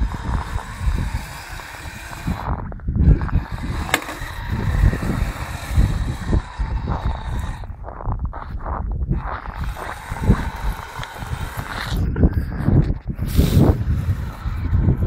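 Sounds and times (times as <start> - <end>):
toy snowcat rumbling over snow: 3.0 - 7.6, 9.4 - 12.1
sharp click: 3.9 - 4.3.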